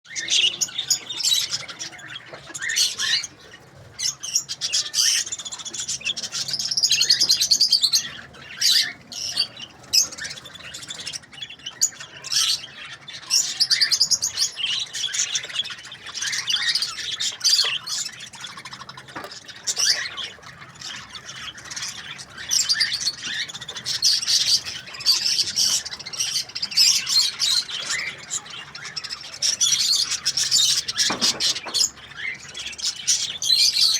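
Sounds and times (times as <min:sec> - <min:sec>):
budgerigars chattering and squawking: 0:00.1 - 0:33.9.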